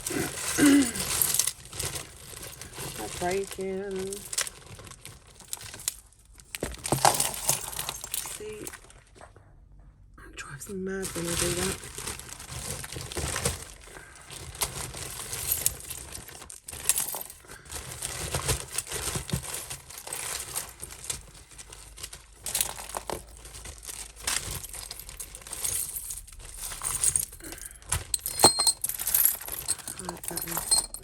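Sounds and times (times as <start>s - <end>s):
plastic bags rustling: 0.0s - 9.2s, 11.0s - 31.0s
jewellery clinking: 5.4s - 8.9s, 15.1s - 17.5s, 18.6s - 31.0s.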